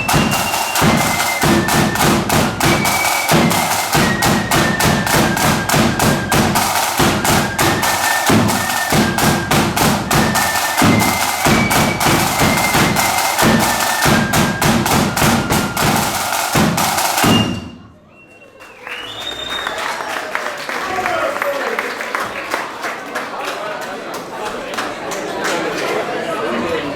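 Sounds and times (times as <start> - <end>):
rapid snare drumming: 0.0 - 17.8
marching flute band: 0.0 - 20.2.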